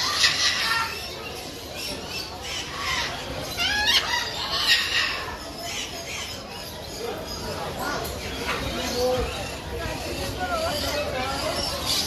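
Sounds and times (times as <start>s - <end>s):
parrots squawking: 0.0s - 6.4s.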